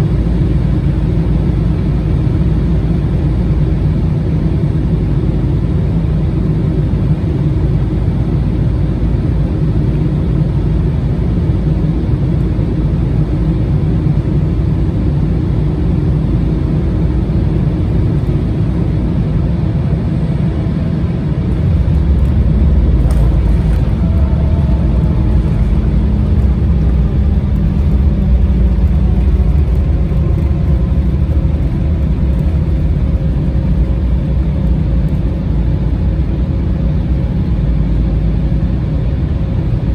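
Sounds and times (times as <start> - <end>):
jet cabin engine rumble: 0.0 - 39.9
faint gliding tones: 19.7 - 34.8.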